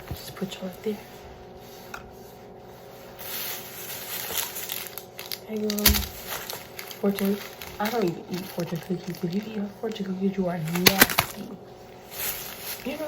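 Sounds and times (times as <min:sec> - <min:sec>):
plastic bag and wrappers rustling: 0:03.1 - 0:13.0.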